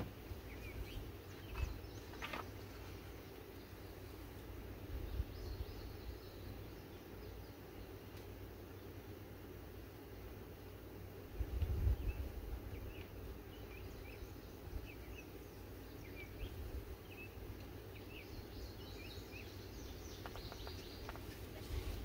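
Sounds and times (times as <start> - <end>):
small birds chirping: 0.0 - 22.0
wind rumble on microphone: 4.8 - 6.1, 11.3 - 15.1.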